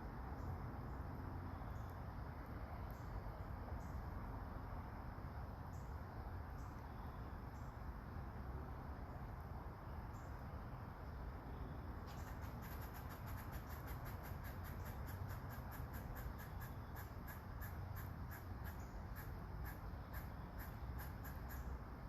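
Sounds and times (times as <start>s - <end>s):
crickets trilling: 0.0s - 22.0s
soft rain hiss: 0.0s - 22.0s
short high insect chirps: 11.6s - 21.8s.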